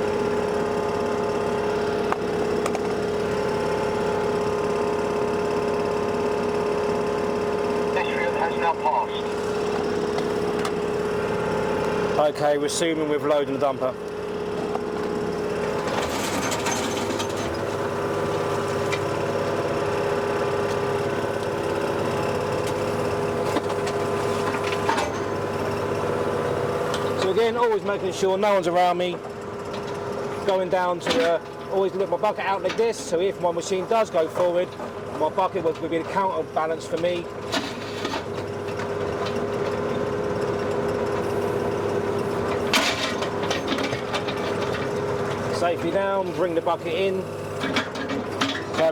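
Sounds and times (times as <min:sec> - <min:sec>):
excavator engine running: 0:00.0 - 0:48.9
steady whine: 0:07.8 - 0:11.0
bucket clatter and scraping: 0:37.5 - 0:39.3, 0:42.6 - 0:46.0.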